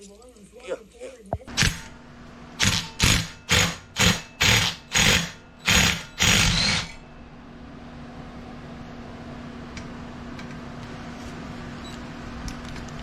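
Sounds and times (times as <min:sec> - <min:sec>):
ratchet wrench clicking: 0:02.6 - 0:07.0.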